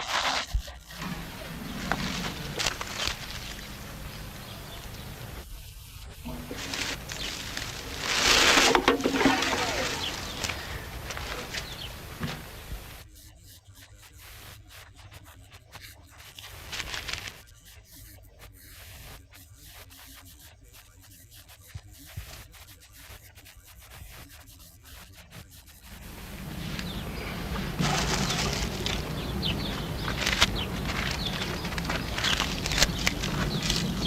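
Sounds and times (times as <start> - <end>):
hand tool scraping render on wall: 6.2 - 11.6.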